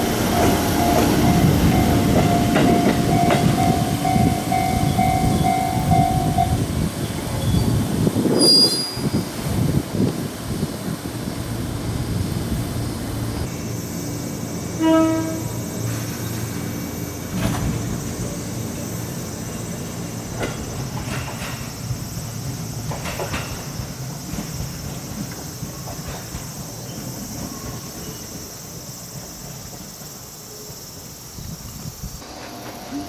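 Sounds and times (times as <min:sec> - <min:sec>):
insects chirping: 0:00.0 - 0:33.0
train rumbling on rails: 0:00.0 - 0:33.0
wheel clacks over rail joints: 0:20.2 - 0:21.9, 0:22.8 - 0:26.7.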